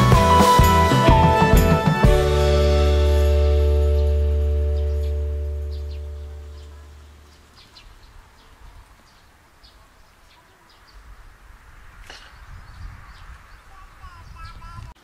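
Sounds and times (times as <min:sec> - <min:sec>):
background music: 0:00.0 - 0:06.7
small birds chirping: 0:03.4 - 0:15.0.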